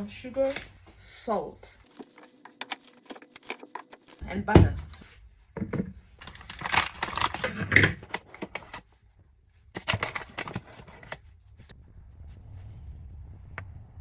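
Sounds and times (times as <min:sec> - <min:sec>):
kitchen items clattering: 0:01.9 - 0:04.9, 0:05.6 - 0:08.8.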